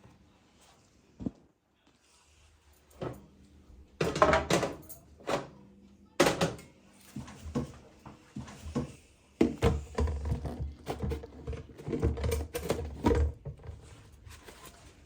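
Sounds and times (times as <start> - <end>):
household knocks and clatters: 4.0 - 5.4, 8.4 - 14.7.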